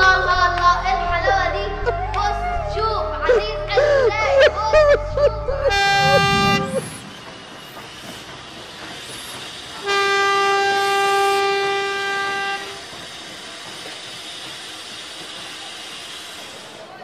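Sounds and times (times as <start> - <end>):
steam locomotive whistle: 5.7 - 8.2, 9.8 - 13.0.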